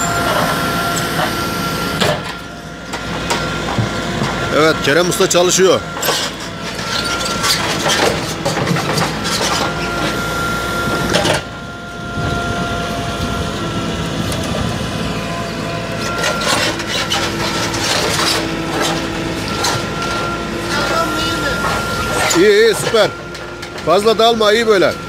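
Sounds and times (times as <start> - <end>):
diesel engine under load: 0.0 - 25.0
hydraulic whine: 0.0 - 25.0
bucket scraping and clanking on rubble: 2.0 - 10.2, 16.0 - 25.0.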